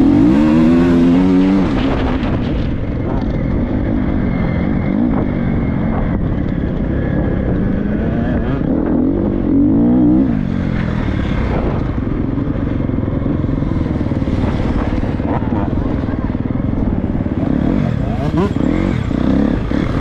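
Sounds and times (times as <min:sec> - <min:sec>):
motocross bike engine revving: 0:00.0 - 0:02.5, 0:13.4 - 0:20.0.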